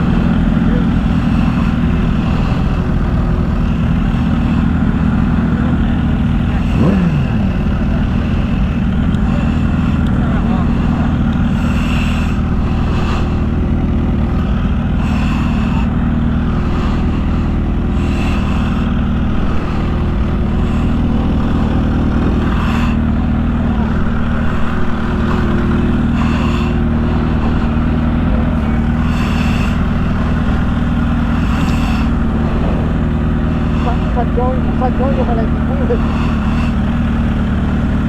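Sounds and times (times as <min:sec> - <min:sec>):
road rumble: 0:00.0 - 0:38.0
vehicle engine droning: 0:00.0 - 0:38.0.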